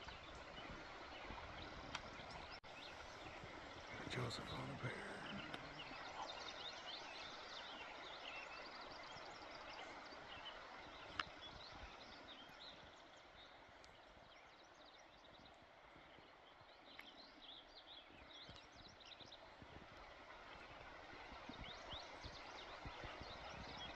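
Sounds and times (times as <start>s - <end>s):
soft steady hiss: 0.0s - 14.8s
small birds chirping: 0.0s - 19.8s.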